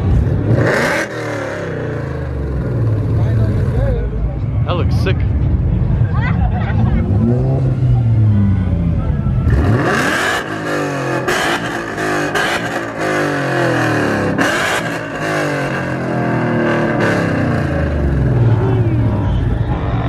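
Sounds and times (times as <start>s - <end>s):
car engine revving: 0.0s - 4.0s, 6.7s - 20.0s.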